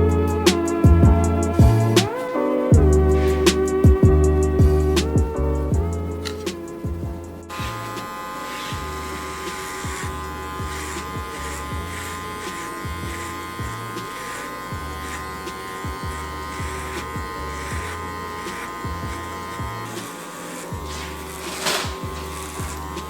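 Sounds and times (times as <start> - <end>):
background music with bass: 0.0 - 8.0
electric hair clippers buzzing: 2.8 - 23.0.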